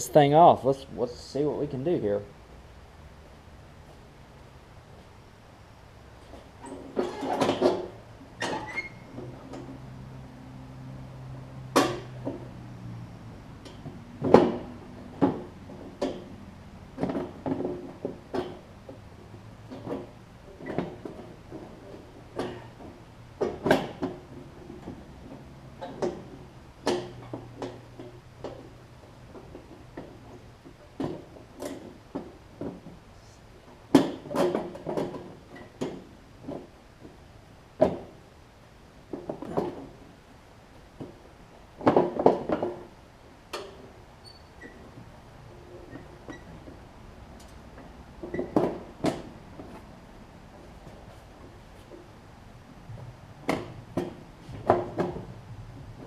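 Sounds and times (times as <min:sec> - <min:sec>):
tools knocking and clanking: 0:53.4 - 0:55.3.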